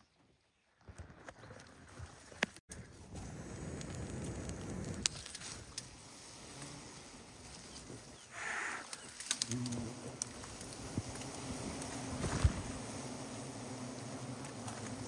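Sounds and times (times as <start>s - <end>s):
steps rustling through undergrowth: 5.1s - 8.3s, 10.3s - 12.9s.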